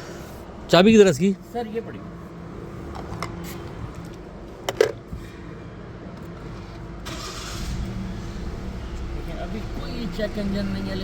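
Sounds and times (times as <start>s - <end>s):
car engine humming: 6.2s - 11.0s.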